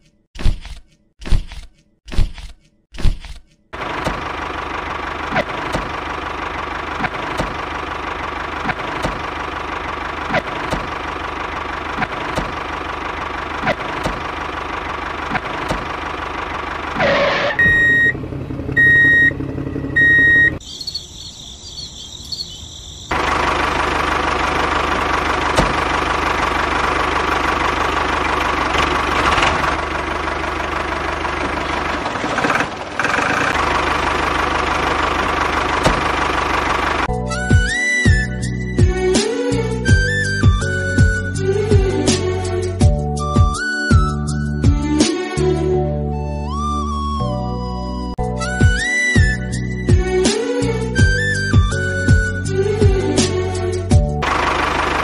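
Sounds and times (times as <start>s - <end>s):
tractor engine running: 3.7s - 45.2s, 48.1s - 55.0s
short beeps: 17.6s - 18.2s, 18.8s - 19.4s, 20.0s - 20.6s.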